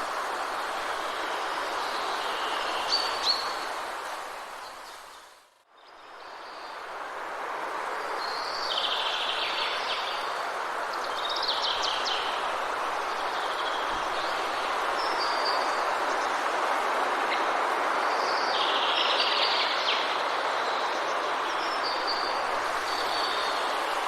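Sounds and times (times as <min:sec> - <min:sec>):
steady rushing background wash: 0:06.2 - 0:24.0.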